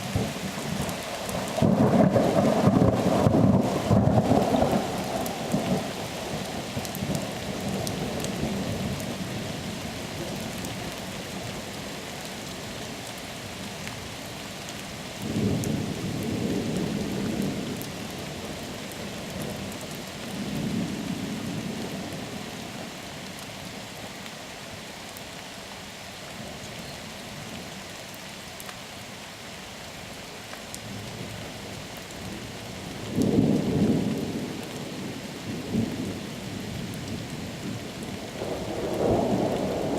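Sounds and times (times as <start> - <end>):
rain hissing: 0.0 - 39.9
thunder rumbling: 0.1 - 8.8, 33.1 - 39.9.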